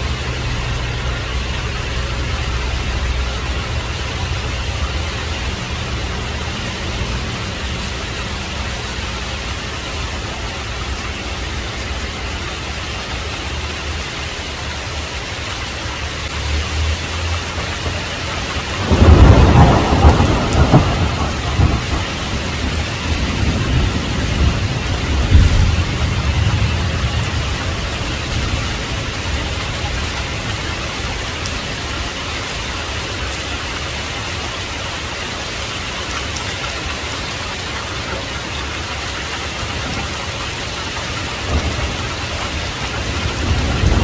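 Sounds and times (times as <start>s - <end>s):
heavy rain falling: 0.0s - 44.0s
low thunder rumbling: 17.5s - 32.0s, 38.8s - 44.0s
loud thunderclap: 17.8s - 30.6s, 39.7s - 44.0s.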